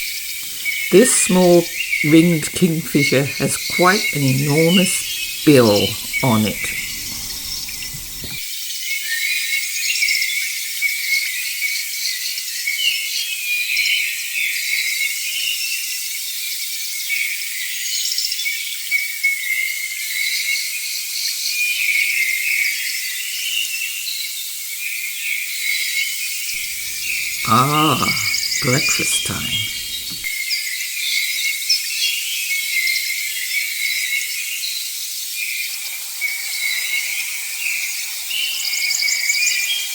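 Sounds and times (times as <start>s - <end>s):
insects and birds chorus: 6.1s - 8.4s.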